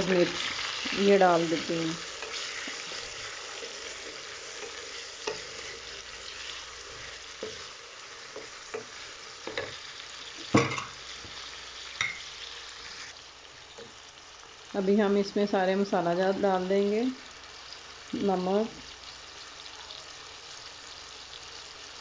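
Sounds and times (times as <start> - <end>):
oil sizzling in a pan: 0.0 - 22.0
wooden spatula scraping a pan: 1.6 - 11.4.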